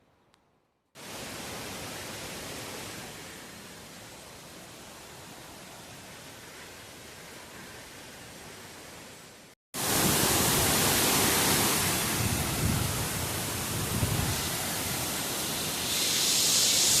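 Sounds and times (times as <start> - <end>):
waterfall rushing: 9.8 - 17.0.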